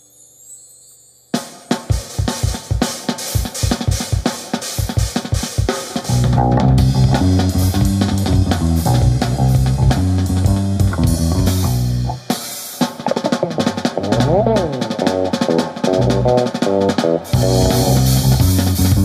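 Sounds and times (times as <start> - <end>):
drum kit beat: 1.4 - 19.0
heavy low guitar: 6.1 - 12.3, 13.0 - 19.0.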